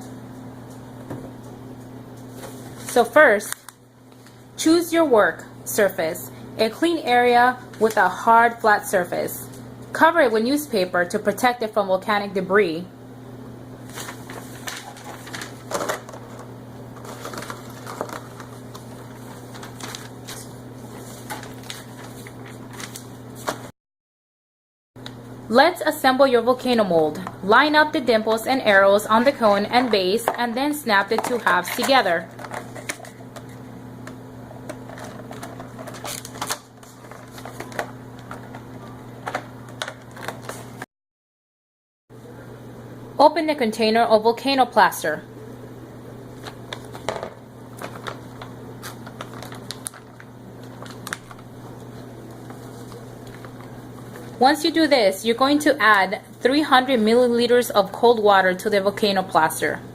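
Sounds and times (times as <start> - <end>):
low electrical hum: 0.0 - 23.7, 25.0 - 40.8, 42.2 - 59.9
newspaper crinkling: 13.9 - 23.7, 34.8 - 38.7, 47.7 - 54.4.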